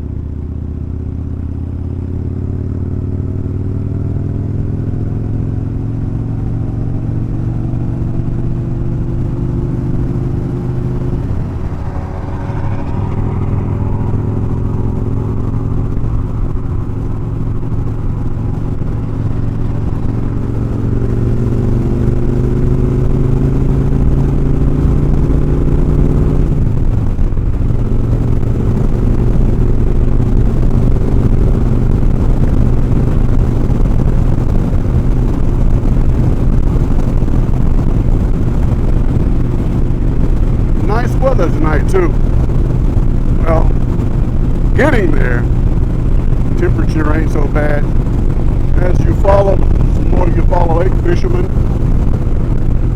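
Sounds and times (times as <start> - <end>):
motorcycle engine running: 0.0 - 52.9
wind and road noise: 0.0 - 52.9.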